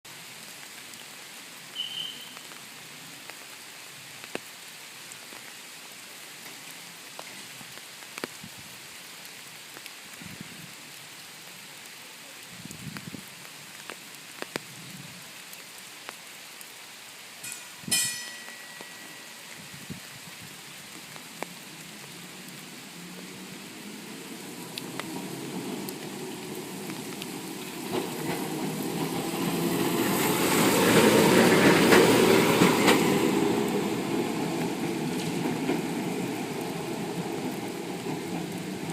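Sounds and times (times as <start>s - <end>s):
tram rumble: 22.3s - 38.9s.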